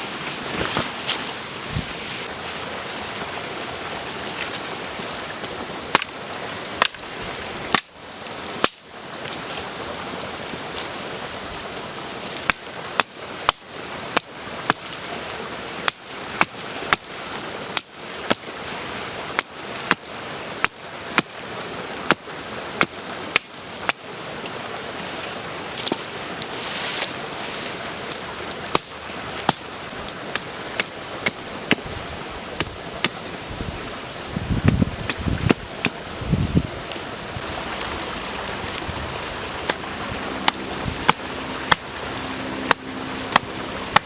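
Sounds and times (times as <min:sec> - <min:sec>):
stream rushing: 0:00.0 - 0:44.0
sharp chopping strikes: 0:40.4 - 0:41.9, 0:42.7 - 0:44.0.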